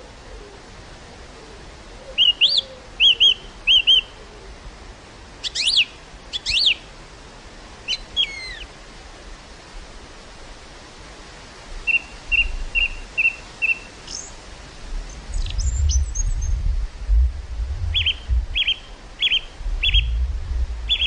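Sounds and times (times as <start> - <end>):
wind hiss: 0.0 - 21.0
small bird chirping: 2.2 - 4.1, 5.4 - 6.8, 7.9 - 8.7, 11.9 - 14.3, 15.1 - 16.6, 17.9 - 20.2.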